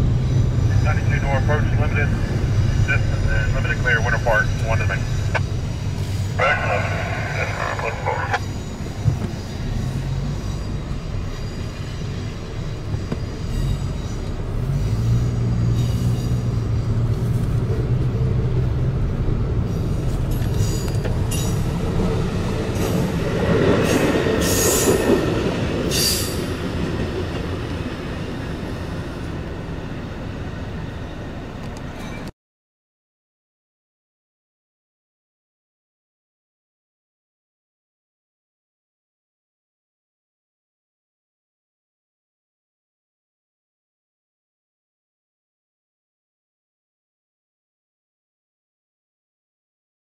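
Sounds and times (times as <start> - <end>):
train wheels rumbling on rails: 0.0 - 32.3.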